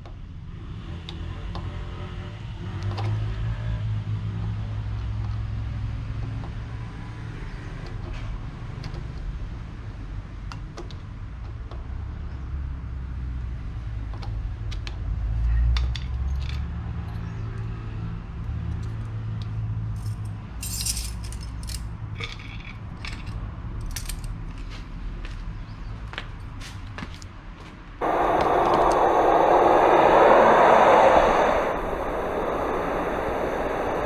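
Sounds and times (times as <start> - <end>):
metallic jingling and clicking: 20.0 - 21.8
motorcycle engine rumbling: 28.0 - 34.0.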